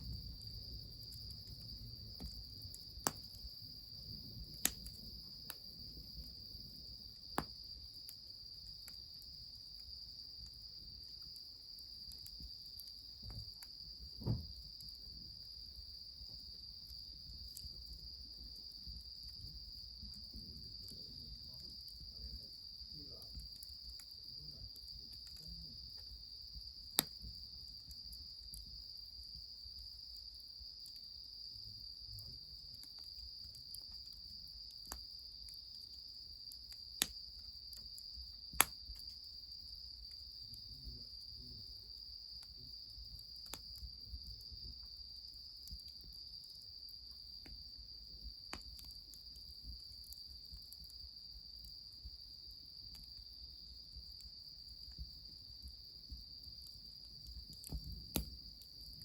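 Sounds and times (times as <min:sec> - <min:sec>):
sharp cracks or pops: 0:57.6 - 0:58.3.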